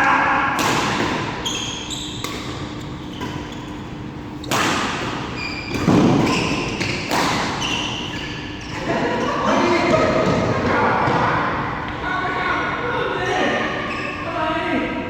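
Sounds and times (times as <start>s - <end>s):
court shoes squeaking: 0.7s - 12.0s, 13.6s - 14.3s
racket striking shuttlecock: 4.4s - 7.6s.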